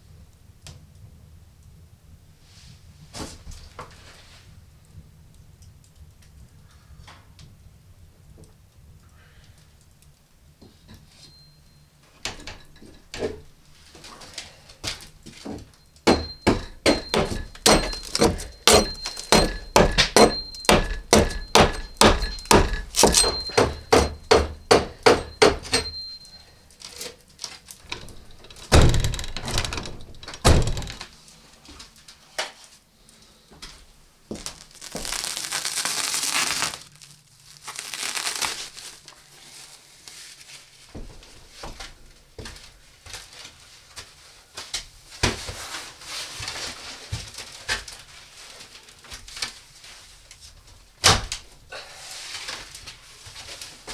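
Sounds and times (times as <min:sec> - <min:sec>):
faint ringing tone: 0:15.8 - 0:26.9
fast sharp knocks: 0:16.1 - 0:26.0
heavy thuds: 0:16.1 - 0:26.2.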